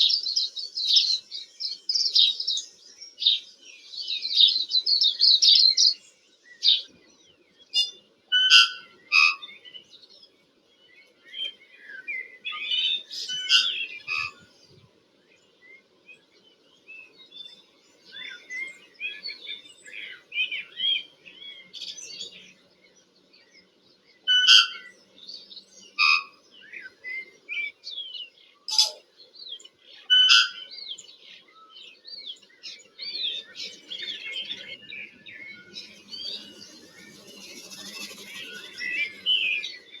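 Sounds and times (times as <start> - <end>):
bird singing chirps and whistles: 11.4 - 14.4, 26.0 - 29.0, 31.6 - 40.0
scratchy bird chatter: 28.7 - 29.0, 33.9 - 40.0.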